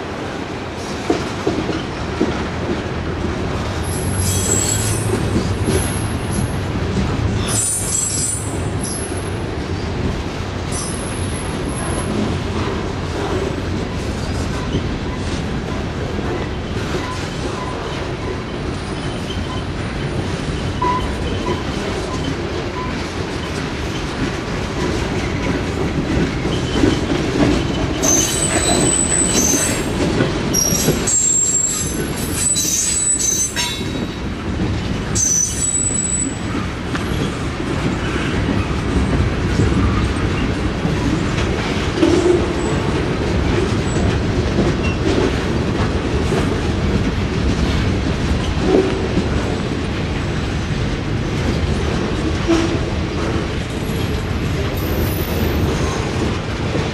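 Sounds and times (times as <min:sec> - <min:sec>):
train rumbling and clattering: 0:00.0 - 0:56.9
high-pitched wheel squeal: 0:03.9 - 0:05.1, 0:07.5 - 0:09.1, 0:30.6 - 0:33.8.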